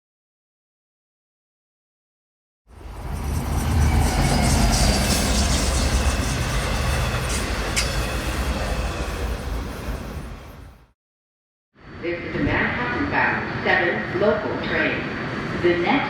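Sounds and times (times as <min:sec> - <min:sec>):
subway train rumble: 0:02.7 - 0:11.0, 0:11.8 - 0:16.0.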